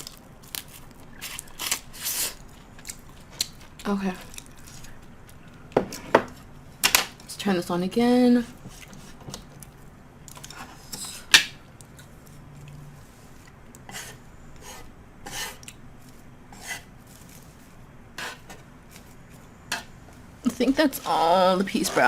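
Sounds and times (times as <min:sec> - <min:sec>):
utensils scraping on grill plate: 0:13.9 - 0:15.6, 0:16.5 - 0:16.9, 0:18.2 - 0:18.6, 0:21.0 - 0:22.0.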